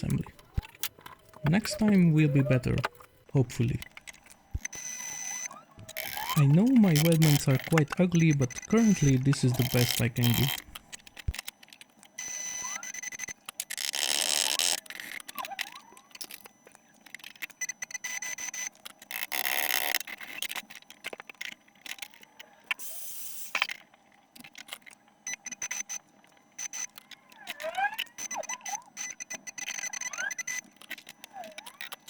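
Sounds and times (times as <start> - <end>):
faint high steady tone: 5.0 - 10.6.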